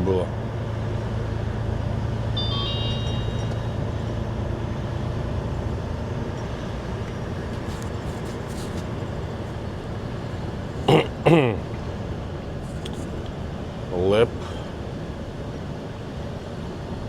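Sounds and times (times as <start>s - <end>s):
road noise: 0.0s - 17.0s
truck diesel engine drone: 0.0s - 17.0s
brief high tone: 2.3s - 5.0s.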